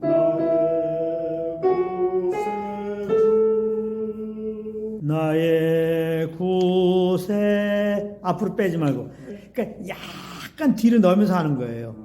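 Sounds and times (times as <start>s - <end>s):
man singing long held notes: 0.0s - 8.2s.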